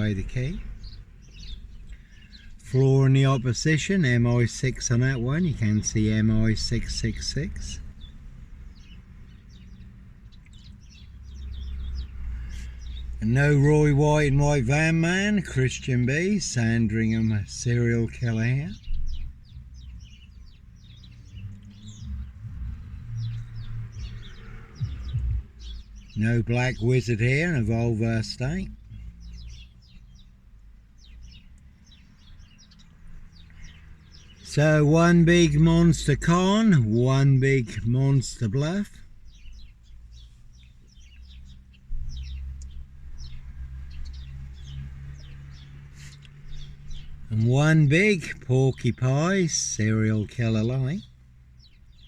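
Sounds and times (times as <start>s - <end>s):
small birds chirping: 0.0s - 52.0s
low rumble: 21.3s - 26.1s.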